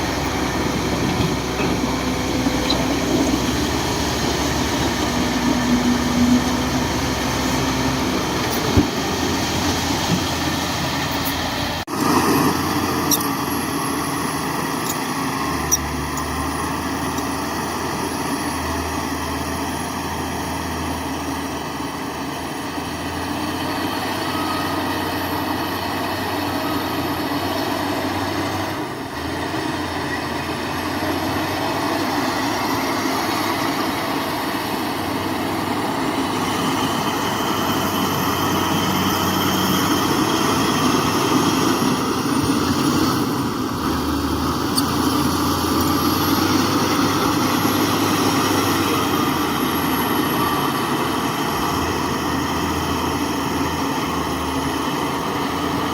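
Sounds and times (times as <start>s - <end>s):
diesel engine running: 0.0s - 55.9s
thin steady whines: 31.6s - 55.9s.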